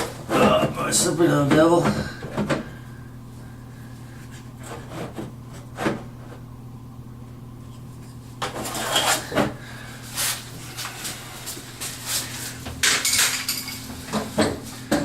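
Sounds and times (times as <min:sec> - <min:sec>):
steady low hum: 0:00.0 - 0:15.0
tools and screws clattering in cabinet: 0:08.4 - 0:09.6, 0:12.6 - 0:15.0.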